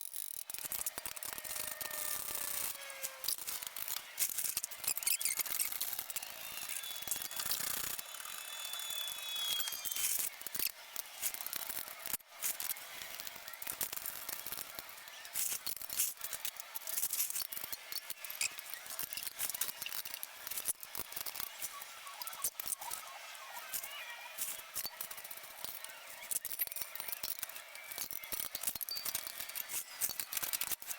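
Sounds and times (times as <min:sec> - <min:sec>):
high squeak: 0:04.8 - 0:10.2
hand tools clicking and clinking: 0:24.4 - 0:30.9.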